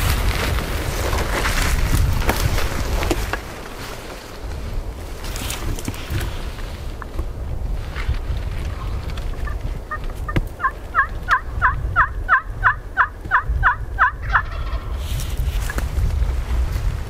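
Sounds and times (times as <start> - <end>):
turkey yelping: 10.6 - 14.8.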